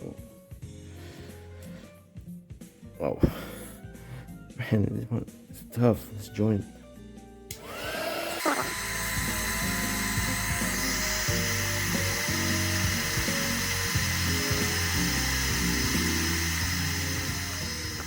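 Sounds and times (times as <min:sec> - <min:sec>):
background music: 0:00.0 - 0:18.0
heat gun blowing: 0:07.5 - 0:18.0.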